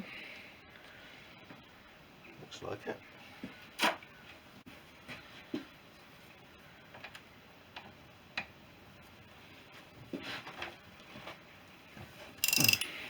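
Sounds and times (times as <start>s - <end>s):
hand tools clicking on metal: 12.4s - 13.0s.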